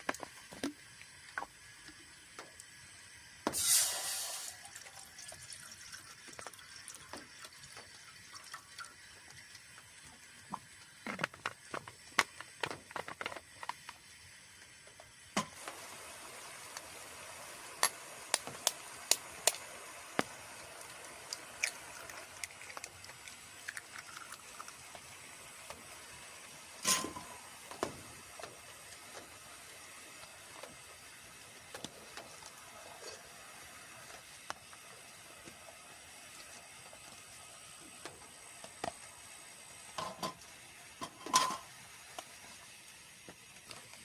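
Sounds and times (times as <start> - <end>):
rain hiss: 0.0 - 44.0.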